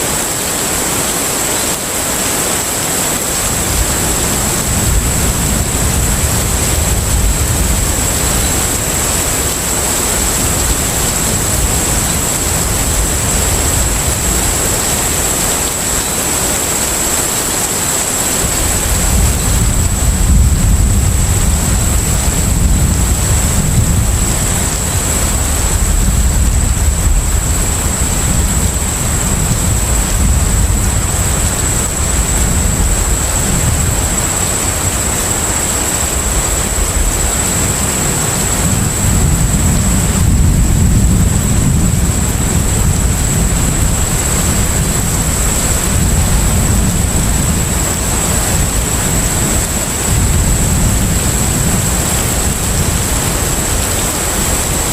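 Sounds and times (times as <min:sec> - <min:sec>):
sea and wind noise: 0:00.0 - 0:54.9
deep ship engine rumble: 0:18.0 - 0:54.9.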